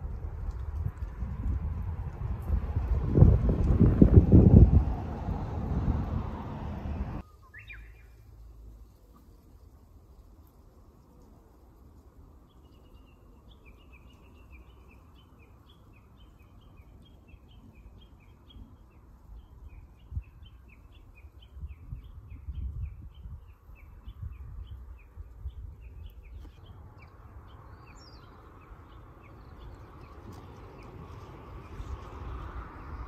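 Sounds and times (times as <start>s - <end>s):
low rumble: 0.0s - 7.2s
small bird chirping: 7.2s - 8.3s, 12.4s - 32.9s.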